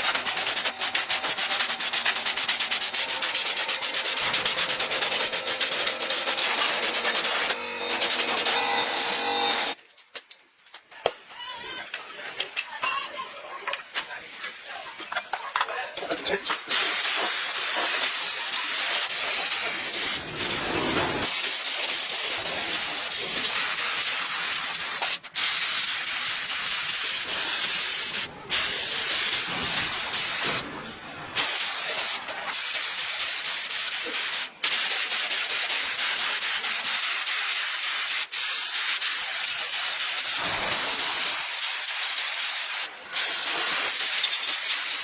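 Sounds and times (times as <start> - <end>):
loud hissing spray: 0.0 - 9.8, 16.7 - 45.0.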